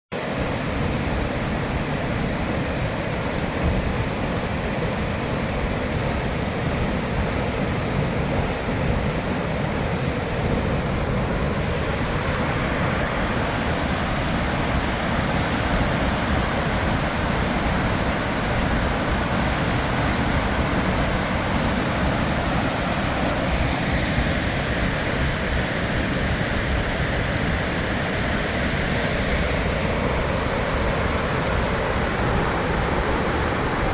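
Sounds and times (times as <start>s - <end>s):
waterfall roaring: 0.2s - 33.9s.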